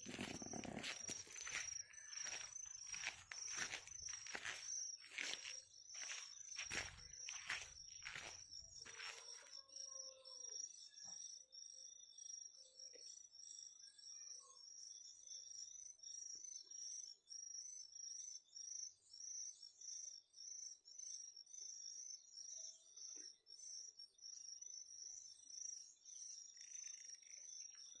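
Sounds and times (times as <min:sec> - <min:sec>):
faint high chirping: 0:00.0 - 0:20.8.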